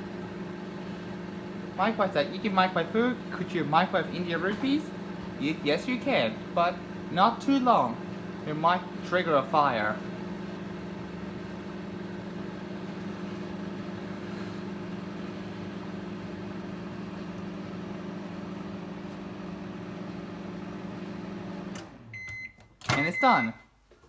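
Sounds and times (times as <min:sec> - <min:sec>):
microwave oven humming: 0:00.0 - 0:23.8
fan whirring: 0:01.0 - 0:13.0.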